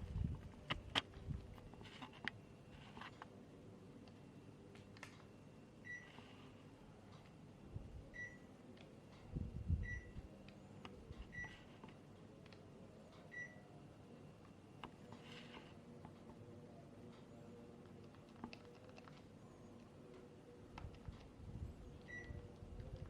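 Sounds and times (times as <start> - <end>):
faint hum: 0.0 - 23.0
air conditioner short high beeps: 5.8 - 6.2, 8.1 - 8.5, 9.8 - 10.2, 13.3 - 13.7, 22.1 - 22.4.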